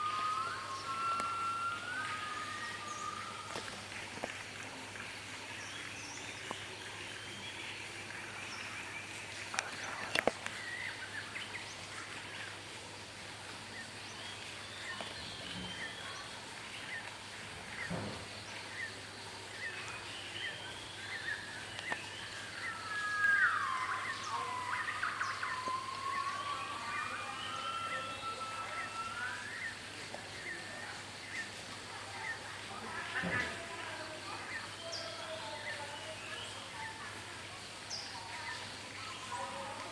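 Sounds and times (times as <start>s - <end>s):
forest birds chirping: 0.0s - 39.9s
gibbons calling in whoops: 22.6s - 29.8s.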